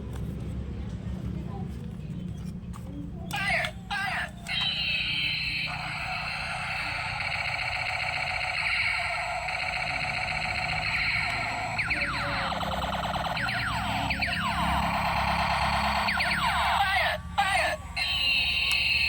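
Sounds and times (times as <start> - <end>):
siren warbling and sweeping: 4.4 - 19.0
steady low rumble: 4.5 - 18.7.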